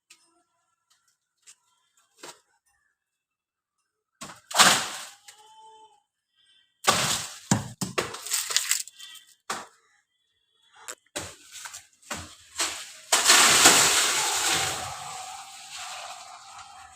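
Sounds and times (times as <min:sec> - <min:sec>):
cracking and crashing: 0:04.2 - 0:05.3, 0:06.8 - 0:09.6, 0:11.2 - 0:16.9.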